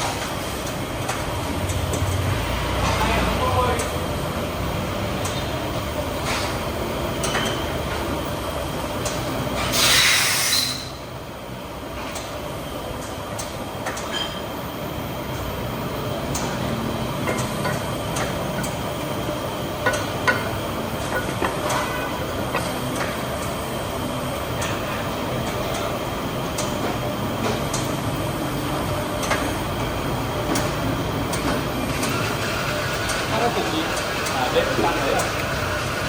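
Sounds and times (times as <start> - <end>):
loud hiss: 9.7 - 10.9.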